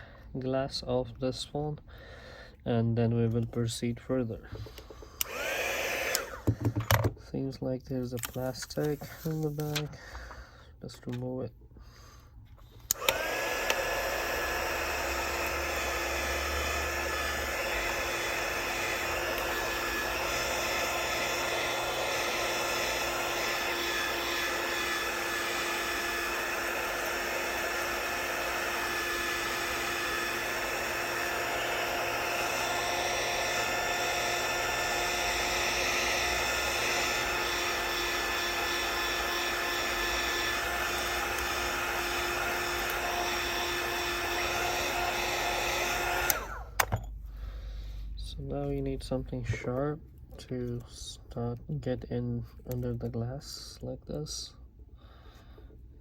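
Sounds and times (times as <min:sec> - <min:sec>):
heat gun whining: 0:03.4 - 0:07.3, 0:08.0 - 0:11.3, 0:11.9 - 0:47.2.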